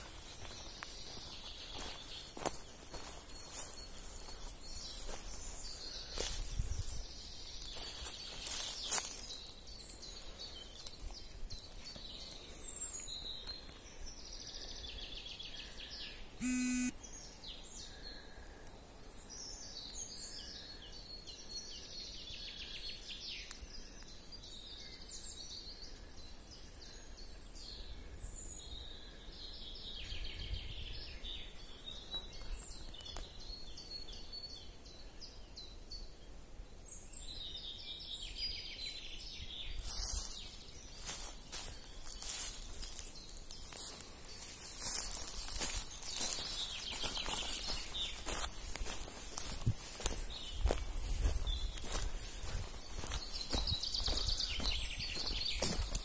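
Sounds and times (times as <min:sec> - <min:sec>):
birds chirping and singing: 0:00.0 - 0:16.4, 0:37.0 - 0:56.0
loud buzz-like blip: 0:16.4 - 0:16.9.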